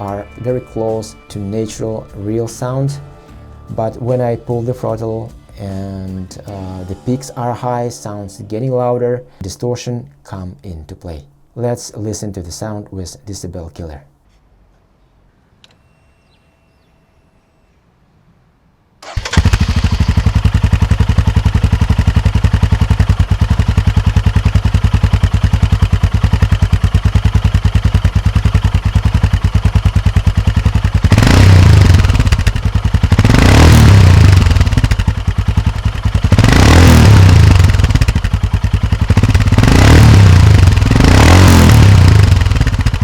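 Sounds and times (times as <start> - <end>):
motorcycle engine idling: 19.0 - 43.0
motorcycle engine revving: 19.0 - 43.0.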